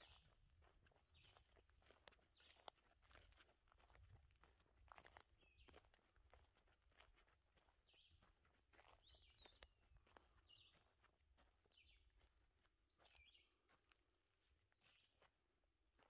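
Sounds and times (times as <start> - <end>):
faint crackles and ticks: 0.0 - 7.2.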